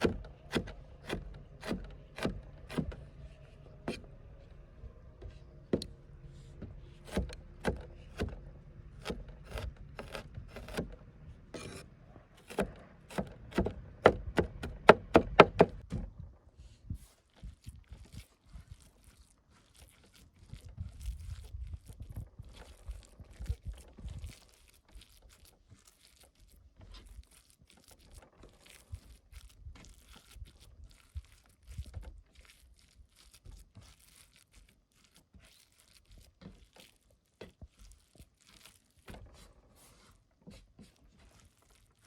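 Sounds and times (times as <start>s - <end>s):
chopping wood: 0.0s - 3.0s, 7.0s - 8.4s, 9.0s - 11.0s, 12.4s - 15.9s.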